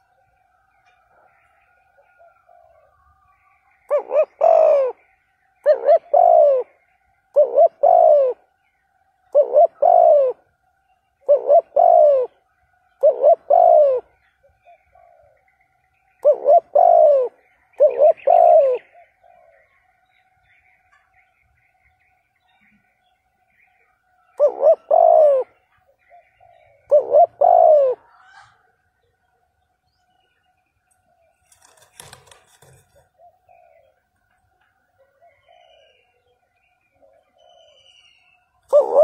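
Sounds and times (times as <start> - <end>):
dove cooing: 0.9 - 3.1, 3.8 - 8.6, 9.2 - 10.6, 11.2 - 15.5, 16.1 - 20.0, 24.2 - 28.8, 31.1 - 34.4, 35.0 - 39.0.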